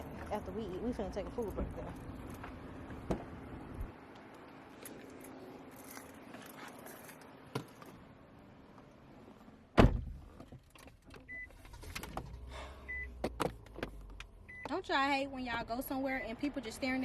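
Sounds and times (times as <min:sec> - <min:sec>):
car door shutting: 0:09.7 - 0:14.0.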